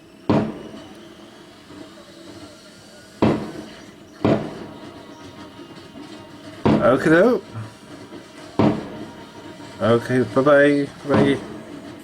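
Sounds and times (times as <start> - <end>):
fireworks banging with echo: 0.1 - 12.0.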